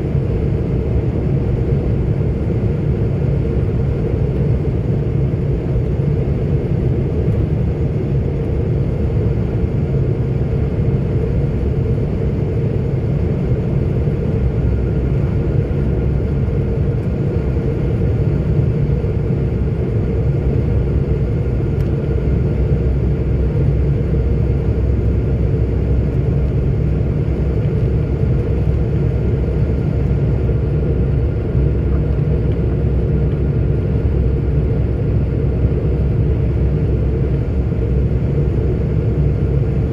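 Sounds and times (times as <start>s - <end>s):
truck engine and tyre rumble: 0.0s - 39.9s.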